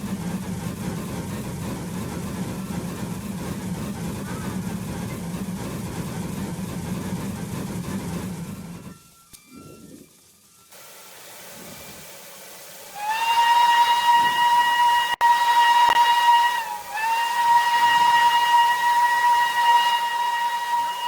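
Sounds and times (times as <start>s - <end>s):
faint hiss: 9.3s - 13.6s
steam locomotive whistle: 12.8s - 21.0s.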